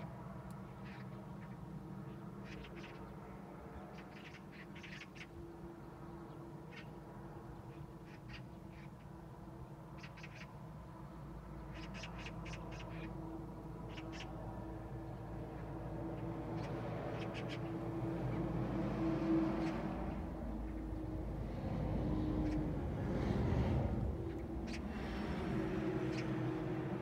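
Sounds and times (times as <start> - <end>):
harsh rasping bird calls: 0.6 - 3.2, 3.9 - 5.4, 6.6 - 7.0, 7.6 - 9.1, 9.9 - 10.6, 11.5 - 14.7, 15.5 - 18.5, 22.1 - 27.0.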